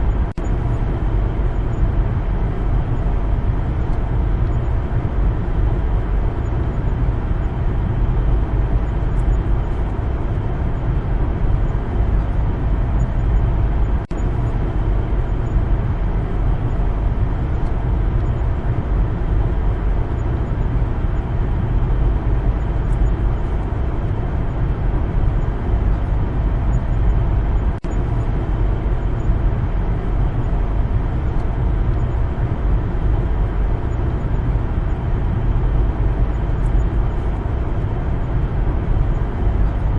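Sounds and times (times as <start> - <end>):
car driving road noise: 0.0 - 39.9.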